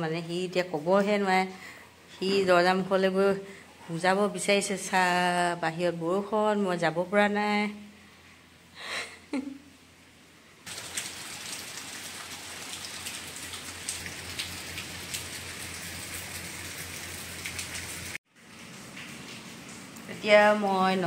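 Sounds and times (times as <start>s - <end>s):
steady rain falling: 10.6s - 21.0s.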